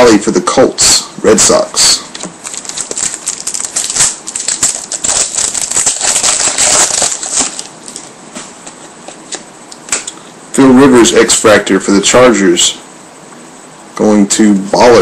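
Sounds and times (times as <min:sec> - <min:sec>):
cards rustling and clicking: 0:02.1 - 0:10.1.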